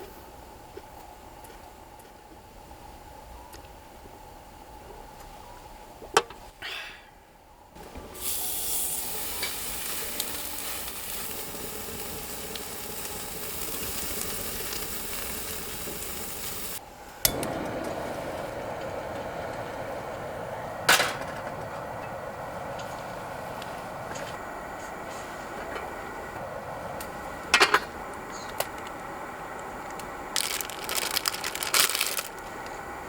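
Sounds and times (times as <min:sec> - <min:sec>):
food sizzling in a pan: 0:08.2 - 0:16.8
low rushing noise: 0:16.8 - 0:30.4.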